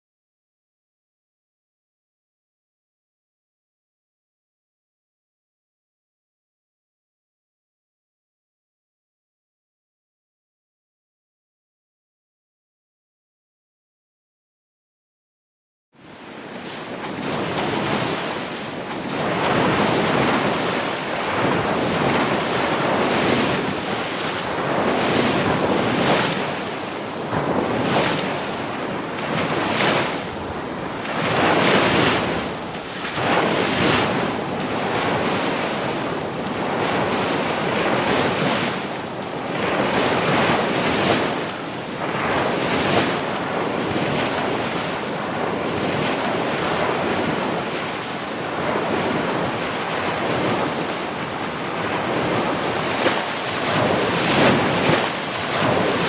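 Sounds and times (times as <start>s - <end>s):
ocean waves breaking: 16.0s - 56.0s.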